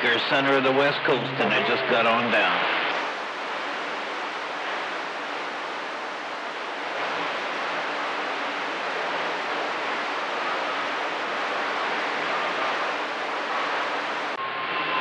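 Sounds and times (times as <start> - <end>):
radio static hiss: 0.0 - 15.0
faint radio whistles: 10.2 - 15.0.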